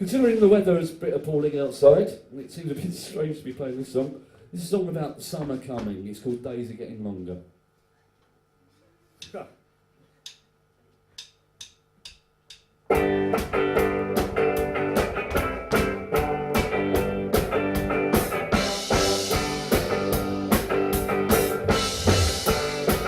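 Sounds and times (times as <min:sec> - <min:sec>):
drum kit playing steady beat: 0:12.9 - 0:23.0
guitar: 0:12.9 - 0:23.0.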